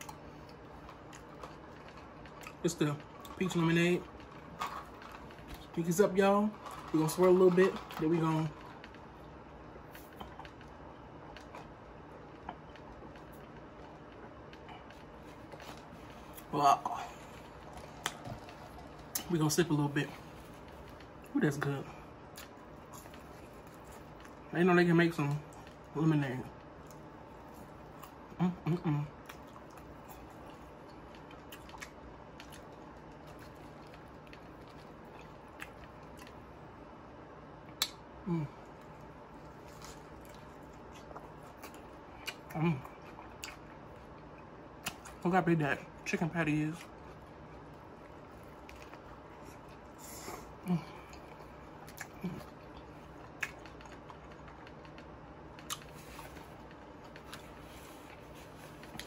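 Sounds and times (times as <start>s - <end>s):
chewing: 0.0s - 24.5s, 25.3s - 25.9s, 26.5s - 36.7s, 37.7s - 45.2s, 46.8s - 59.0s
faint room hum: 0.0s - 59.0s
lip smacks: 37.6s - 45.2s, 48.4s - 59.0s.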